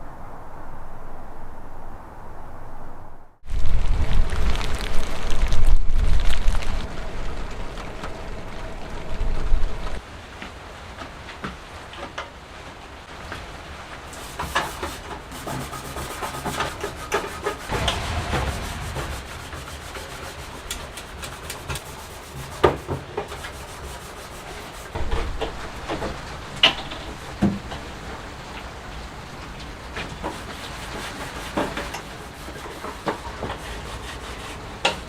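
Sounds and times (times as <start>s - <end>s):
rubbing and scraping: 14.1s - 25.7s, 30.0s - 35.0s.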